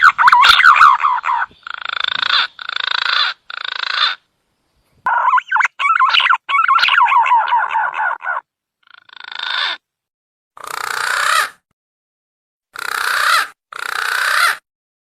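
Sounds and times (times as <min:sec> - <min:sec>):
harsh rasping bird notes: 0:00.0 - 0:04.2, 0:10.6 - 0:11.6, 0:12.8 - 0:14.6
fluting whistled bird notes: 0:05.1 - 0:07.8.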